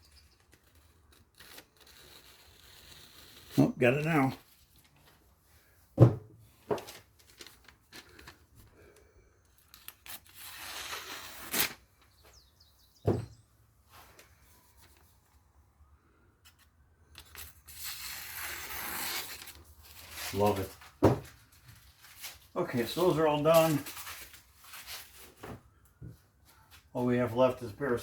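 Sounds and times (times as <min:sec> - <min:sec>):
knife slicing through paper: 0:00.6 - 0:03.7, 0:09.9 - 0:11.8, 0:17.2 - 0:20.7.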